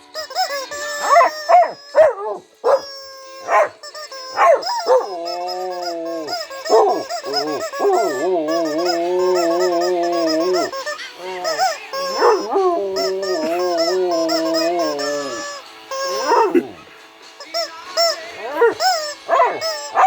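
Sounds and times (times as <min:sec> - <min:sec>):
dogs howling: 0:01.0 - 0:16.9, 0:18.1 - 0:20.0.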